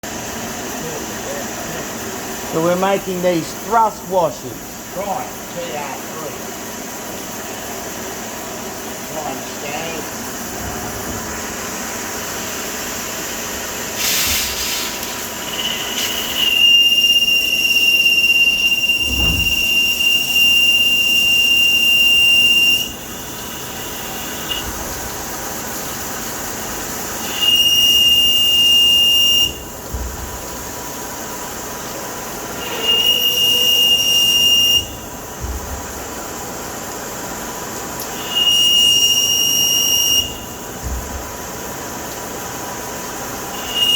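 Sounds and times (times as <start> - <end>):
lathe tool squealing: 15.3 - 24.6.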